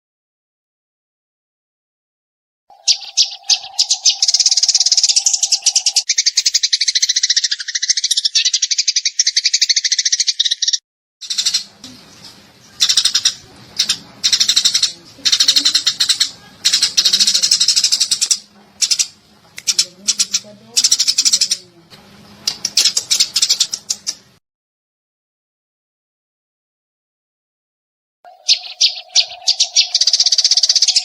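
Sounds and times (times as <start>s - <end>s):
sparrow chirping in rapid trills: 2.7s - 21.7s, 22.5s - 24.2s, 28.3s - 31.0s.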